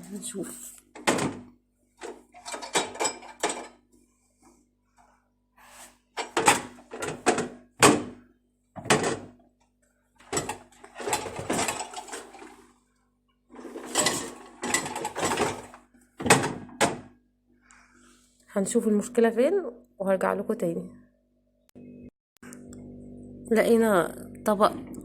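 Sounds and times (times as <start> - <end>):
dishwasher rack clattering: 1.0 - 3.8, 6.2 - 8.2, 8.8 - 9.4, 10.2 - 12.6, 13.6 - 17.1.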